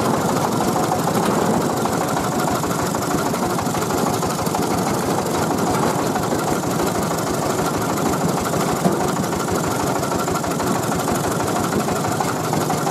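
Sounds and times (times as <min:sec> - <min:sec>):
diesel engine running steadily: 0:00.0 - 0:12.9.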